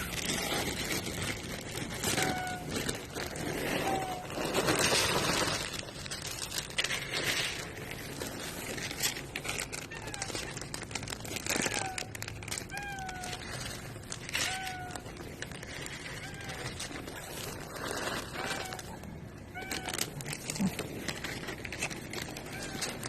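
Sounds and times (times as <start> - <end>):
kitten mewing: 0.0 - 4.8, 9.6 - 23.0
rustling crinkling noise: 0.0 - 23.0.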